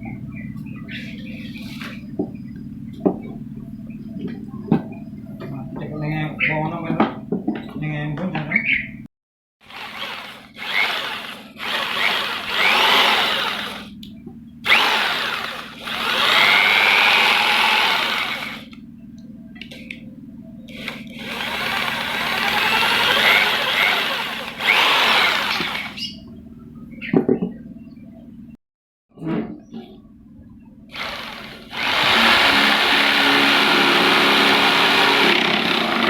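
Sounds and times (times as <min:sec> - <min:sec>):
electric jigsaw motor: 0:09.6 - 0:13.9, 0:14.7 - 0:18.8, 0:20.7 - 0:26.0, 0:30.9 - 0:36.0.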